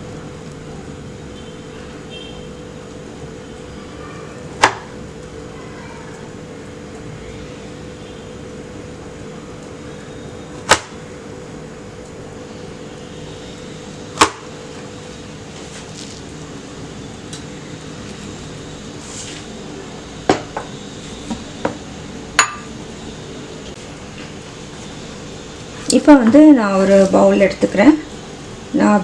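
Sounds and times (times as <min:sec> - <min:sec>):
microwave humming: 0:00.0 - 0:29.0.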